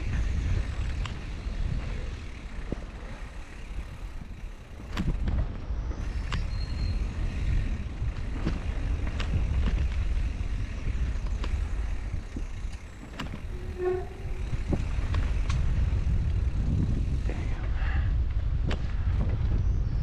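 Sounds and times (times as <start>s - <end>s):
bike clicks and rattles: 0.0s - 20.0s
wind and tyres rumbling: 0.0s - 20.0s
short squeak: 12.9s - 15.0s.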